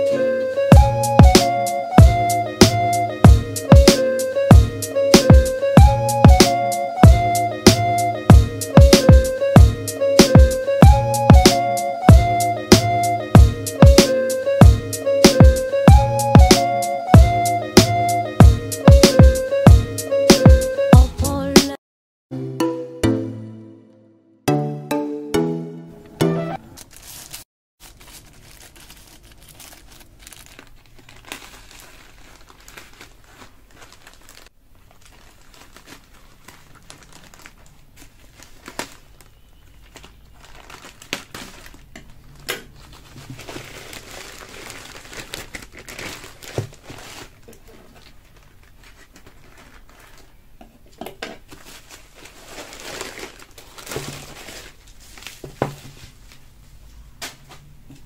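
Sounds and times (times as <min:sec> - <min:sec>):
packaging crinkling and rustling: 0:26.7 - 0:56.5.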